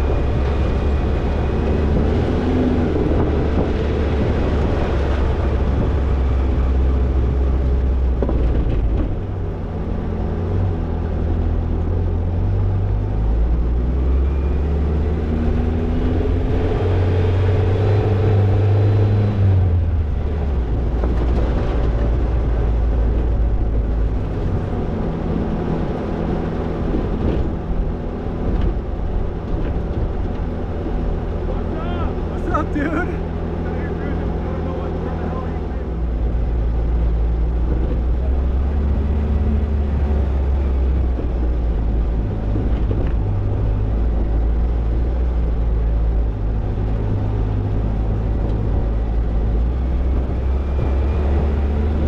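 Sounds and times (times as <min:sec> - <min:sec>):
car engine droning: 0:00.0 - 0:52.0.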